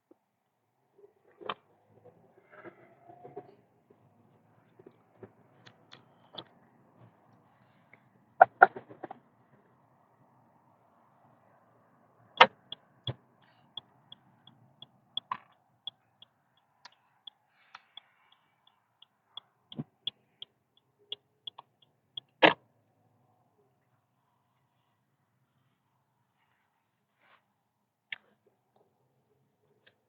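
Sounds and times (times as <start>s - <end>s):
turn signal ticking: 12.4s - 22.4s.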